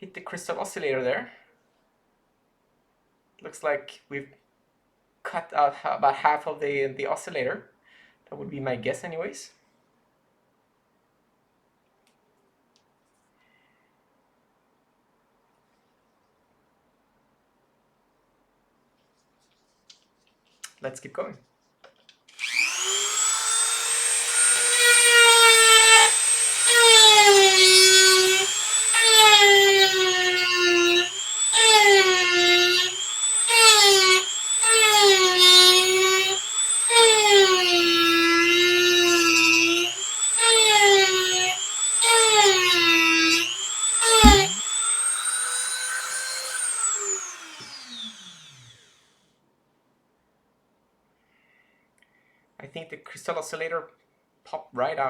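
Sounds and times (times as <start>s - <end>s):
rotary tool grinding: 22.4s - 49.0s
sharp knock: 44.2s - 44.6s.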